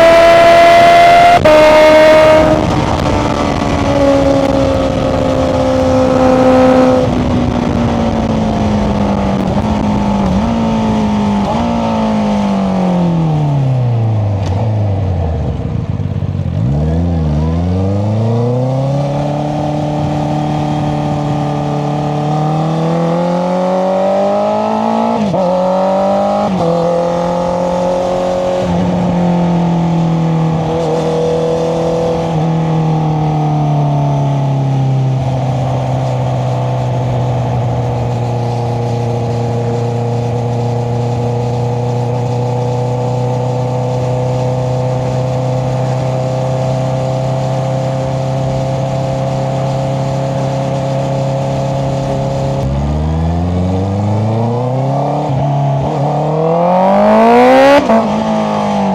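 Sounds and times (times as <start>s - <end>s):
quick gear upshifts: 0.0s - 23.6s
motorcycle engine under way: 0.0s - 58.9s.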